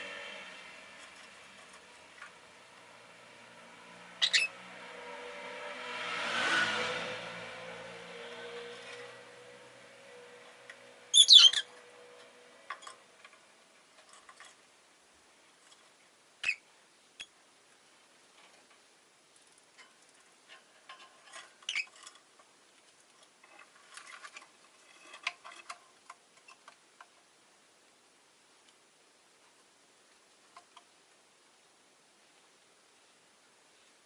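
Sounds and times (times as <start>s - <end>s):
lovebirds shrill calls: 4.2s - 4.5s, 11.1s - 11.7s, 16.4s - 16.6s, 21.7s - 21.9s
birds clicking and scratching: 8.1s - 14.7s, 19.4s - 27.2s.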